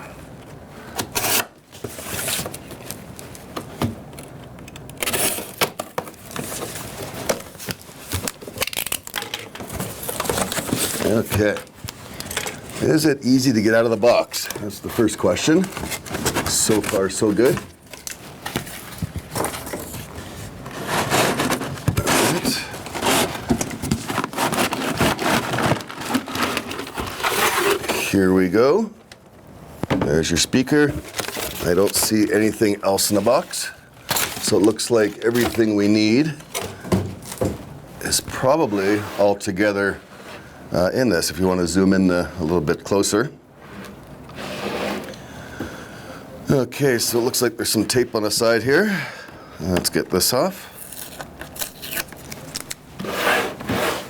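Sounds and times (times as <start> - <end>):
cardboard rustling and scraping: 1.2 - 4.0, 5.1 - 28.5, 29.9 - 40.5, 49.6 - 54.0.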